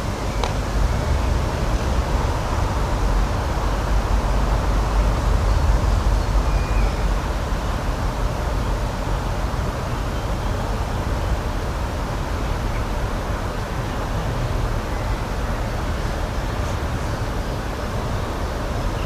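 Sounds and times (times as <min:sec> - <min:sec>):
deep rumble: 0:00.0 - 0:08.8.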